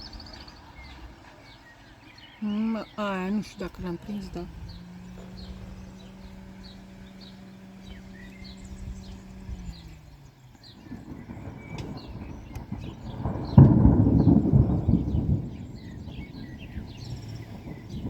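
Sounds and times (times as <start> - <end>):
birds chirping: 0.0 - 18.0
steady hum: 0.0 - 18.0
thunder rumbling and cracking: 10.7 - 18.0.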